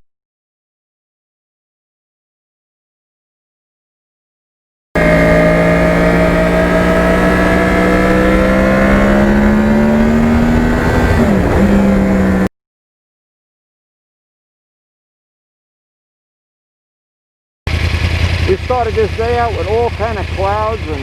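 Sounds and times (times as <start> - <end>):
motorcycle engine accelerating: 5.0 - 12.5, 17.7 - 21.0.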